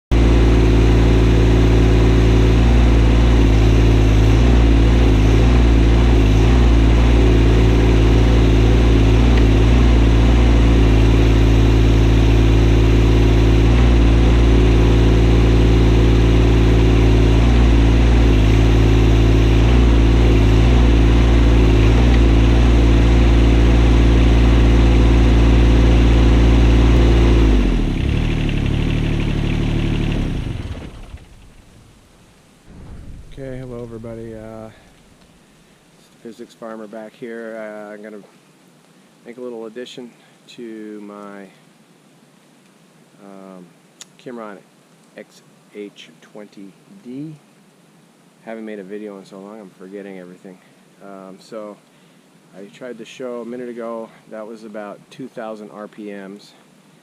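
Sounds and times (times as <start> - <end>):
diesel engine running: 0.1 - 32.1, 32.7 - 35.2.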